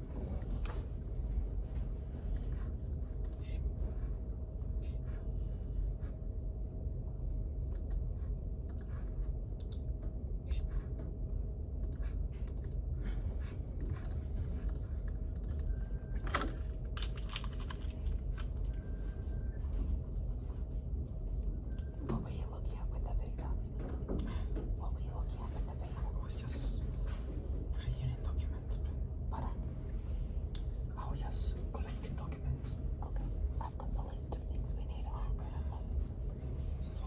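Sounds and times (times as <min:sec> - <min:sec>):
faint hum: 0:00.0 - 0:37.0
low room rumble: 0:00.0 - 0:37.0
keyboard typing clicks: 0:13.8 - 0:17.8.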